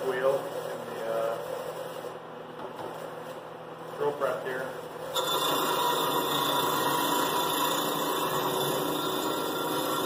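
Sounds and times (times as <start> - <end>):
wire brush wheel scrubbing metal pipe: 5.2 - 10.0.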